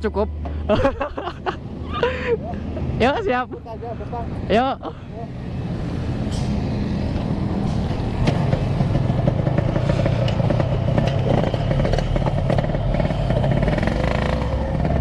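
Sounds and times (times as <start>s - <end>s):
two-stroke motorcycle engine revving: 8.3s - 15.0s.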